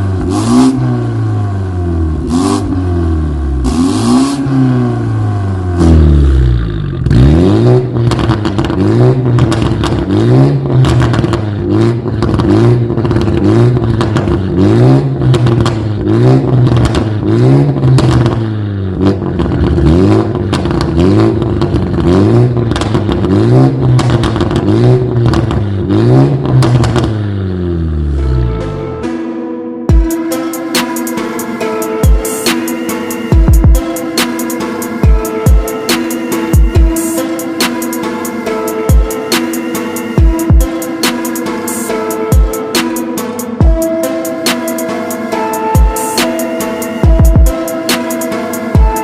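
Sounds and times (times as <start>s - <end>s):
exhaust crackles: 0.0s - 28.8s
car engine revving: 0.0s - 49.0s.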